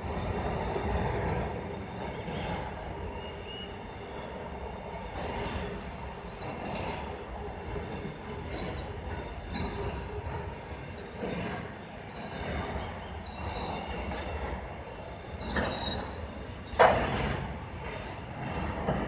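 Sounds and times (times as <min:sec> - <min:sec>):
freight wagons rolling on rails: 0:00.0 - 0:19.0
high wheel squeaks: 0:08.4 - 0:17.4.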